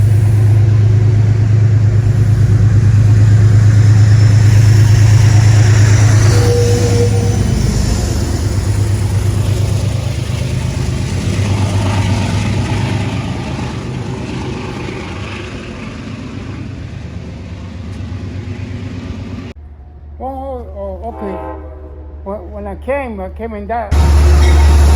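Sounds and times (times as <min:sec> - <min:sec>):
train rumbling past: 0:00.0 - 0:24.9.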